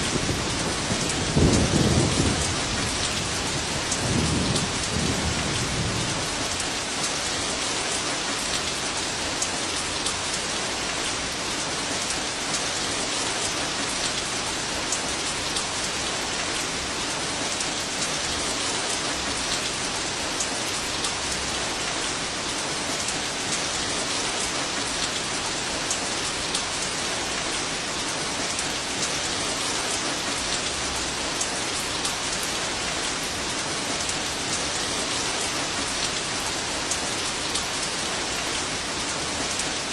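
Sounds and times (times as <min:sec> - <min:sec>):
thunder rumble: 0:00.0 - 0:06.9
heavy rain falling: 0:00.0 - 0:39.9.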